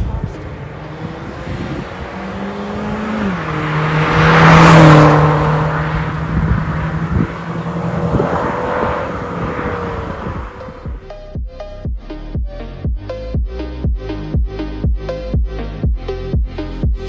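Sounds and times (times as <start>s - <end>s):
car engine running steadily: 0.0s - 11.0s.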